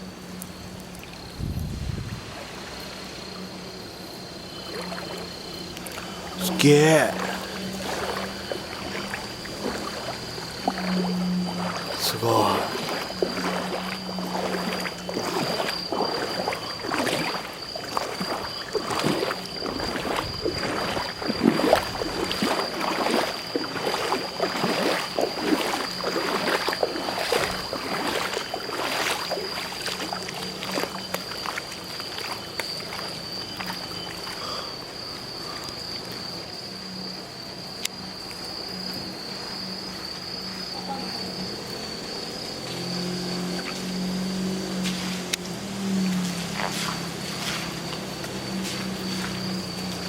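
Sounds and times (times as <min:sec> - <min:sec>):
floodwater splashing and sloshing: 0:07.1 - 0:34.5, 0:43.4 - 0:50.0.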